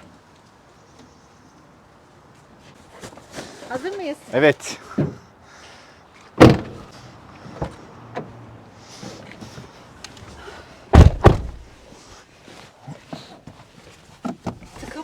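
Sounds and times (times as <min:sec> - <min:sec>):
car doors slamming: 0:06.4 - 0:06.9, 0:10.9 - 0:11.8.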